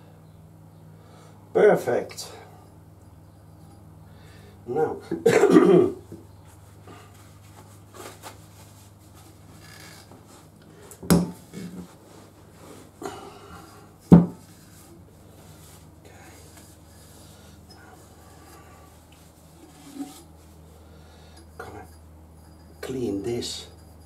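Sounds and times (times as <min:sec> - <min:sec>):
sharp knocks on workbench: 0:11.0 - 0:11.4, 0:14.1 - 0:14.4.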